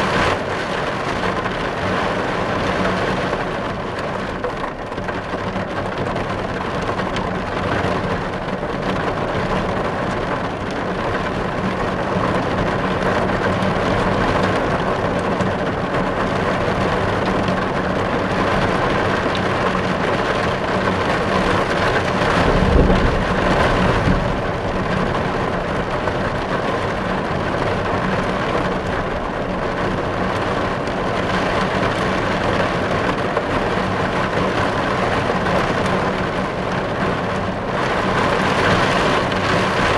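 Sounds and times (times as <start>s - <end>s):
heavy rain drumming on a car: 0.0s - 39.9s
low rumble: 21.8s - 27.3s.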